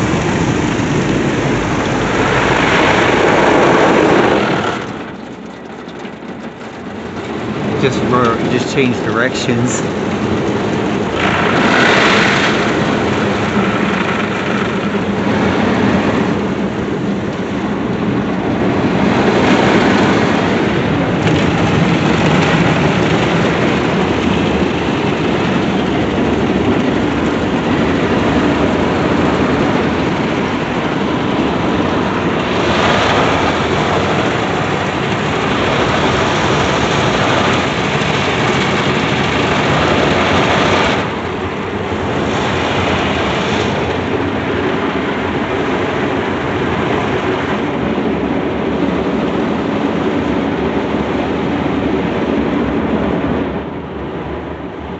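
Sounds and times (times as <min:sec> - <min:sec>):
water spraying on car: 0:00.0 - 0:19.1.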